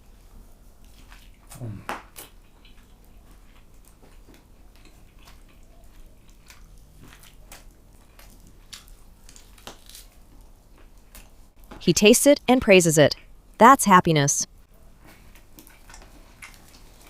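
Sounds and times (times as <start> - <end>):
person chewing food: 0.8 - 11.4, 15.0 - 17.0
small clicks and crunches: 3.8 - 10.2.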